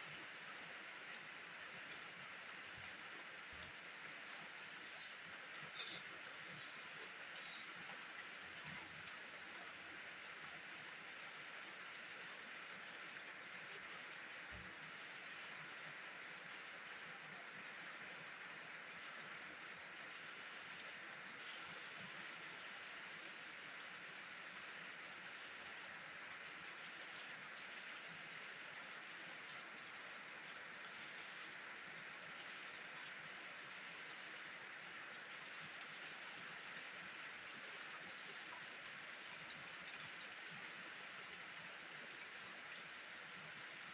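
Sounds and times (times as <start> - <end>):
rain falling: 4.8 - 9.2.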